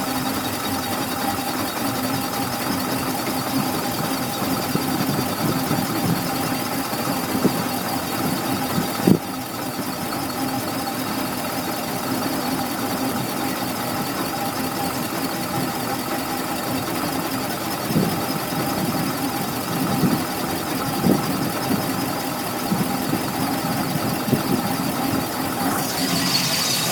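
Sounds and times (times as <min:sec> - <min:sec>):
car engine idling: 0:00.0 - 0:26.9
high-pitched whine: 0:25.6 - 0:26.9.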